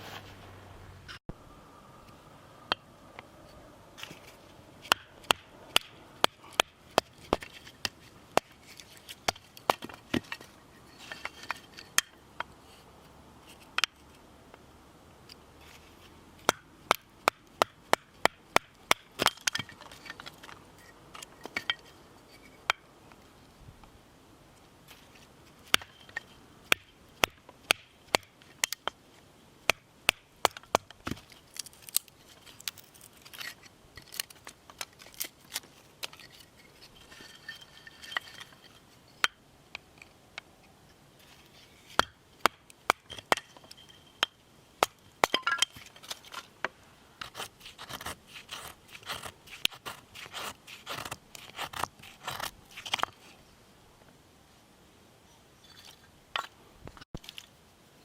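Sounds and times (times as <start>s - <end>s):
blade chopping wood: 4.8s - 8.5s, 26.7s - 29.0s.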